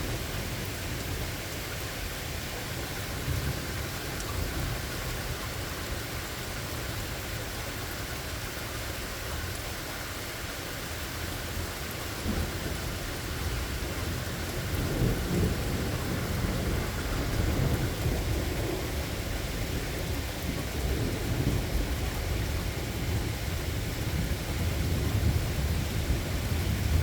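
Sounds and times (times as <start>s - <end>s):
steady rain: 0.0s - 27.0s
distant thunder rumbling: 12.2s - 27.0s.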